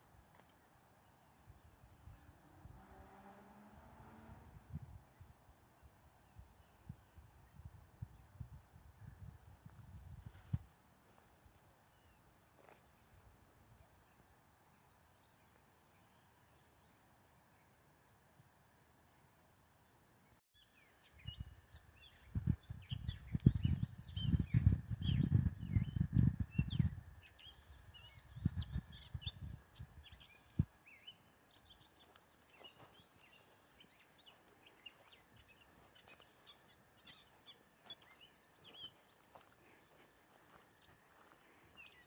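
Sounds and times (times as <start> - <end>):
songbirds chirping: 0.0 - 42.0
wind buffeting microphone: 4.3 - 5.4, 6.4 - 10.7, 21.2 - 30.7.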